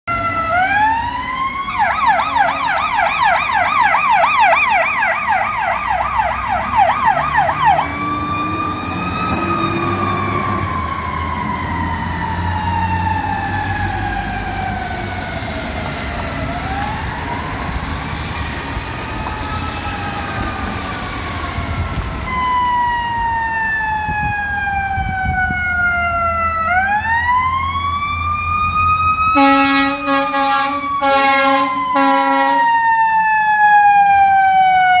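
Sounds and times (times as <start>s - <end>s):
sirens wailing and yelping: 0.0s - 35.0s
truck engines rumbling: 0.0s - 35.0s
air horn blast: 29.3s - 32.7s.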